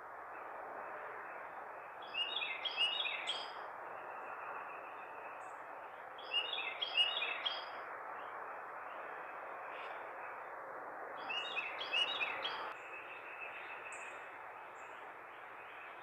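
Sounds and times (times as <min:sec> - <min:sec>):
outdoor background noise: 0:00.0 - 0:16.0
bird chirping: 0:01.2 - 0:05.6, 0:06.2 - 0:09.1, 0:11.2 - 0:16.0.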